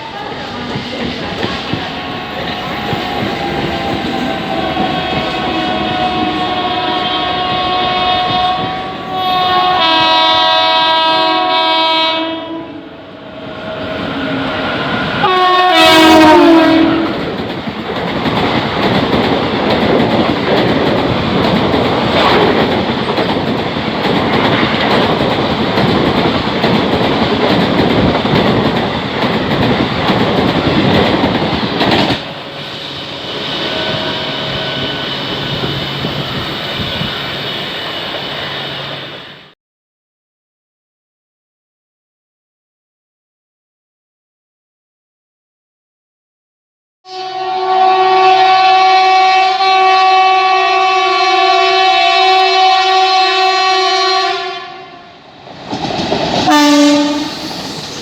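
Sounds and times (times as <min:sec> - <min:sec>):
train wheels clickety-clack: 0:00.1 - 0:08.8, 0:16.8 - 0:32.9, 0:55.5 - 0:58.0
two-tone locomotive horn: 0:01.9 - 0:13.0, 0:15.1 - 0:17.2, 0:32.7 - 0:36.1, 0:47.1 - 0:55.3, 0:56.5 - 0:57.5.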